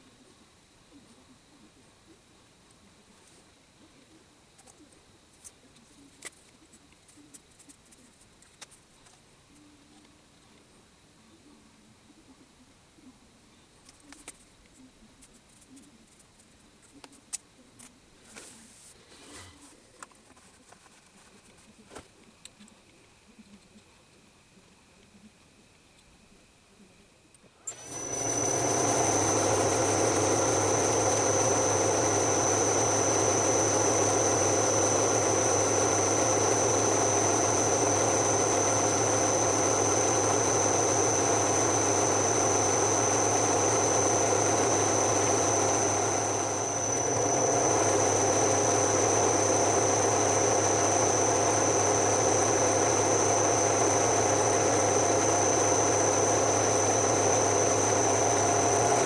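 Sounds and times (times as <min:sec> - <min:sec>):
machine tool whining: 0:27.6 - 0:59.0.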